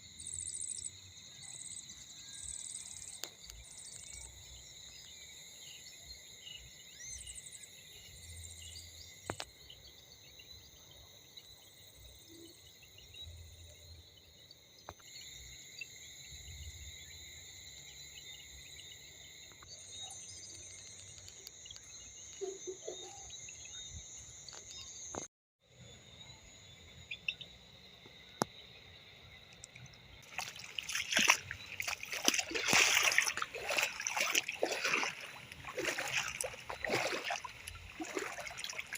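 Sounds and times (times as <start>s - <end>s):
insects trilling: 0.1s - 38.9s
water splashing and rushing: 30.2s - 38.9s.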